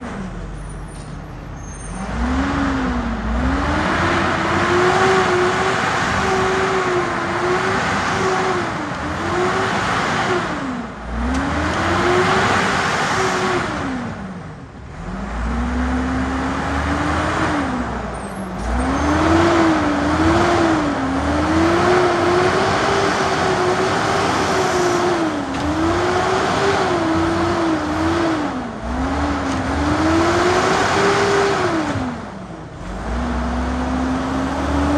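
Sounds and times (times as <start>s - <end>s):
garbage truck engine revving: 1.5s - 34.9s.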